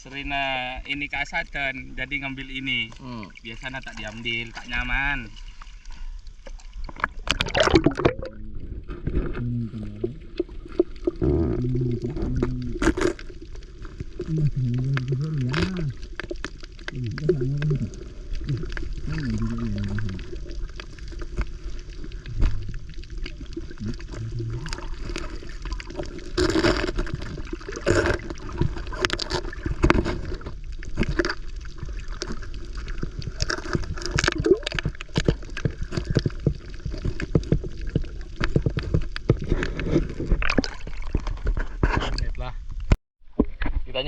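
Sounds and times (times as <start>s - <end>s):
water sloshing and gurgling: 0.4s - 43.9s
sharp clicks and crackles: 10.4s - 43.0s.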